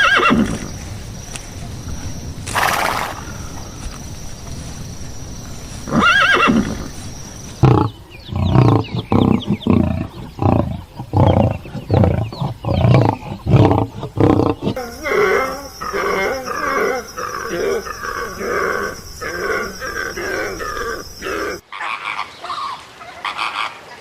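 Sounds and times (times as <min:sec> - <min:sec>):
large animal calling: 0:05.9 - 0:22.3
animal chattering: 0:07.6 - 0:22.2.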